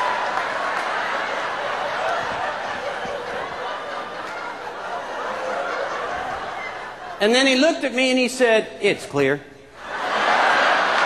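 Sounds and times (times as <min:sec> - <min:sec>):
audience laughing: 0:00.0 - 0:07.3, 0:09.8 - 0:11.0.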